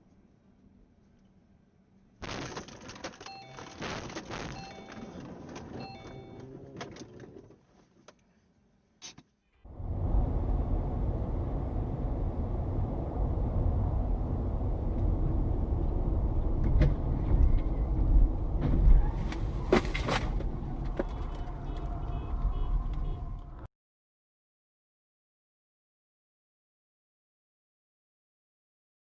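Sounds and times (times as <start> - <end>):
car road and engine rumble: 9.7 - 23.7.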